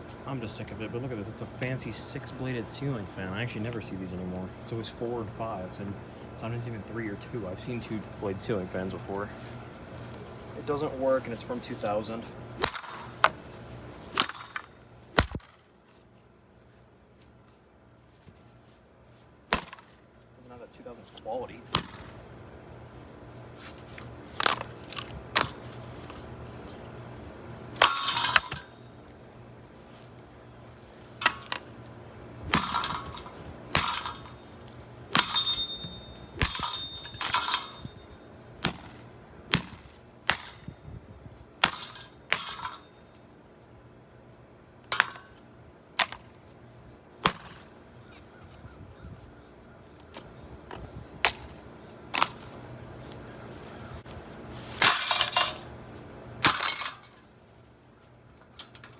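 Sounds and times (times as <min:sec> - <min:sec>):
ceiling fan being smashed: 0:27.8 - 0:28.7, 0:32.5 - 0:34.4, 0:35.1 - 0:38.0, 0:41.6 - 0:43.0, 0:54.7 - 0:55.6, 0:56.4 - 0:57.2
metal housing clanging: 0:27.8 - 0:28.8, 0:32.5 - 0:38.2, 0:41.6 - 0:43.0, 0:54.8 - 0:55.8, 0:56.4 - 0:57.3.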